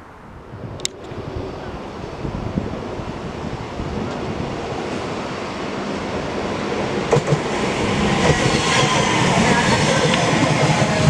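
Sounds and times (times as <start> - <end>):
train wheels rushing on rails: 1.0 - 11.0.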